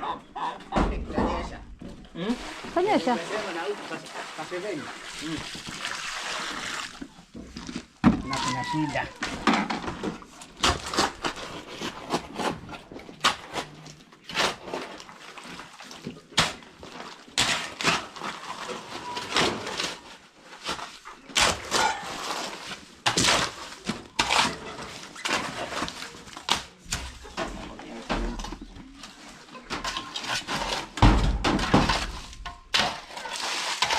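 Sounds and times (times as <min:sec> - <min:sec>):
tools scraping wet cement: 0:06.4 - 0:15.7, 0:16.3 - 0:33.9.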